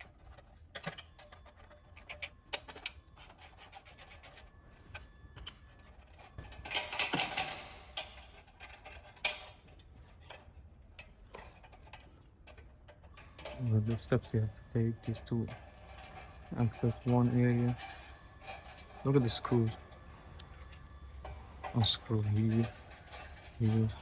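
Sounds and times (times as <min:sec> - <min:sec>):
rasping scrape: 0:00.0 - 0:04.6
clatter of hand tools: 0:00.0 - 0:19.8, 0:20.6 - 0:24.0.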